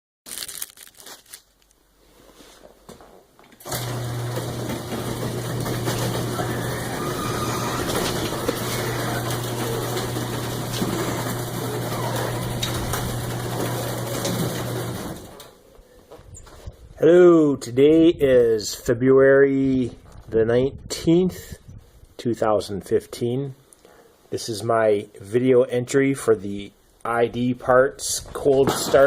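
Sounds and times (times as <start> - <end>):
motorised machine humming: 3.7 - 15.5.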